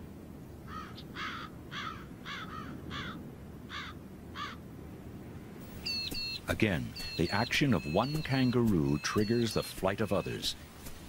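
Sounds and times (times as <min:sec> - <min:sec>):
bird calling: 0:05.7 - 0:10.6.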